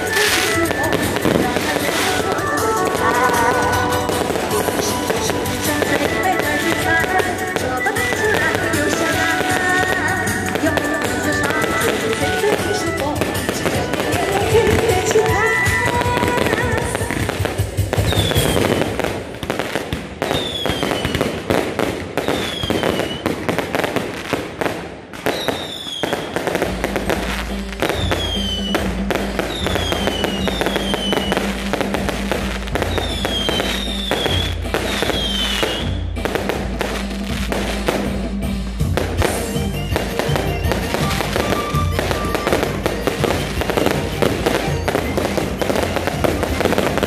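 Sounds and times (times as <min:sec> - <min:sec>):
fireworks crackling and banging: 0:00.0 - 0:47.0
falling firework whistles: 0:18.0 - 0:19.2, 0:20.3 - 0:21.4, 0:22.2 - 0:24.0, 0:25.2 - 0:26.5, 0:32.9 - 0:35.9.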